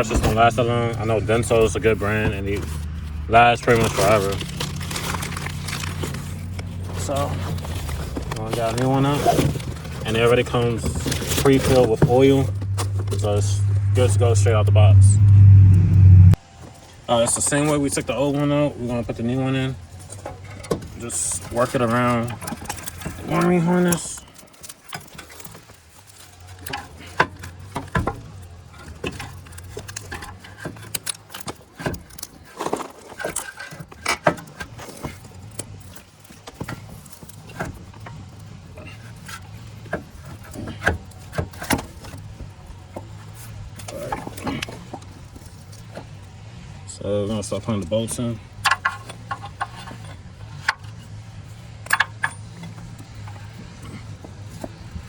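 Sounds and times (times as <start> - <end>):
steady low hum: 7.5 - 17.1
metallic clinks and knocks: 48.5 - 55.0.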